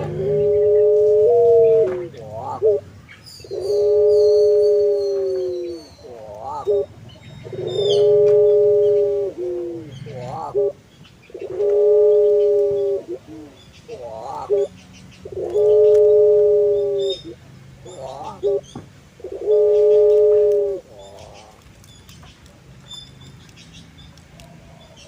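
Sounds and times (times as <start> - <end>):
dove cooing: 0.0 - 21.6.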